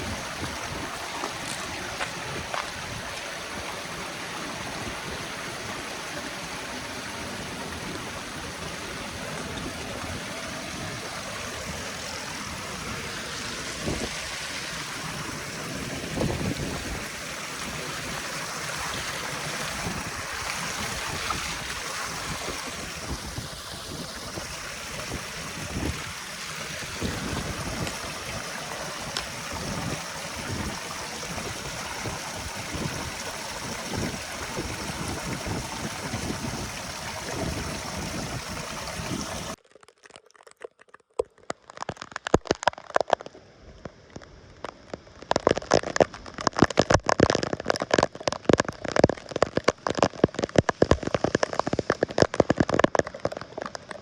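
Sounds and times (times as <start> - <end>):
floodwater rushing through drain: 0.0 - 39.6, 44.1 - 54.0
sharp clicks and crackle: 39.6 - 54.0.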